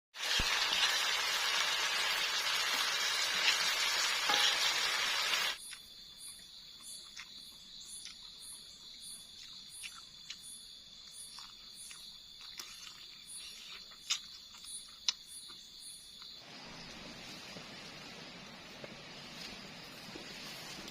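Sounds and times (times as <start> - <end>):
food sizzling in a hot pan: 0.1 - 5.6
night insects trilling: 0.2 - 20.9.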